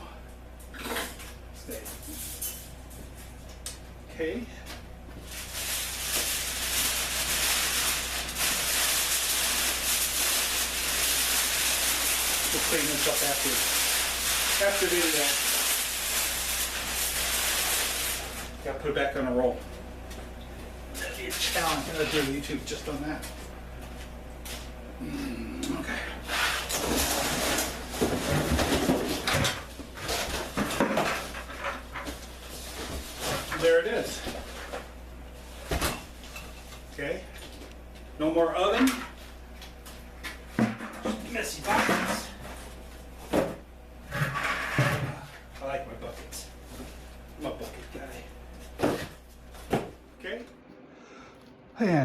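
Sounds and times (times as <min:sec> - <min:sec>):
tin foil crinkling: 0:05.2 - 0:18.6.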